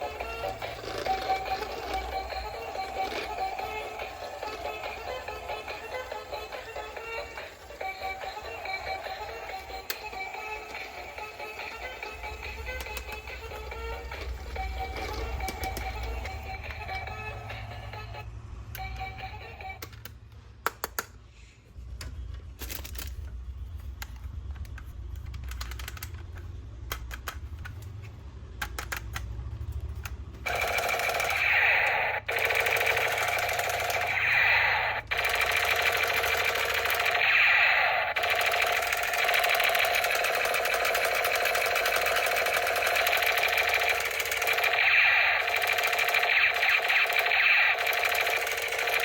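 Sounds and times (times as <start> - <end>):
toy gun machine-gun sound effect: 0.0 - 18.2, 18.8 - 19.8, 30.5 - 49.0
plastic parts clicking: 14.9 - 16.4, 19.8 - 21.2, 22.0 - 23.3, 23.9 - 30.8.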